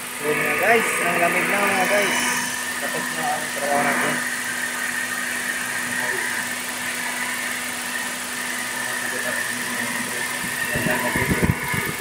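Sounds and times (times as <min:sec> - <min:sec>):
air conditioning compressor hum: 0:00.0 - 0:12.0
car engine idling: 0:00.0 - 0:12.0.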